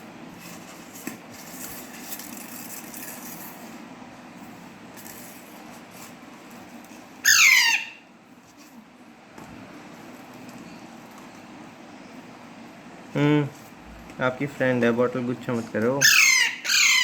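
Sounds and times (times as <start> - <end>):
parrot screeching: 7.2 - 8.0, 16.0 - 17.0.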